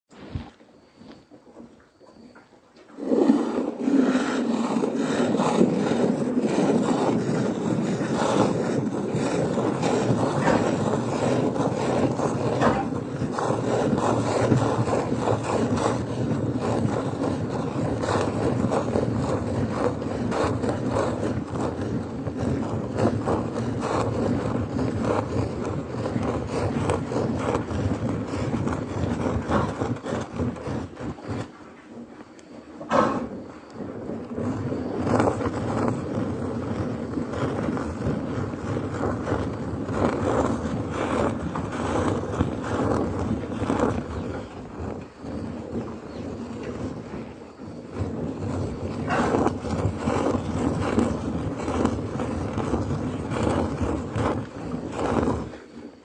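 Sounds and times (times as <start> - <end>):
rasping milking noise: 3.0 - 31.8.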